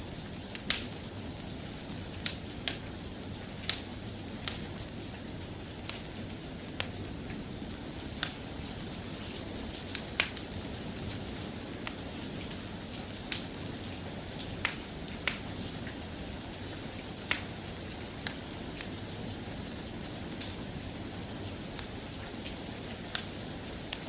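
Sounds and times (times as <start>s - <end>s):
steady rain: 0.0s - 24.0s
wood fire crackling: 0.0s - 24.0s.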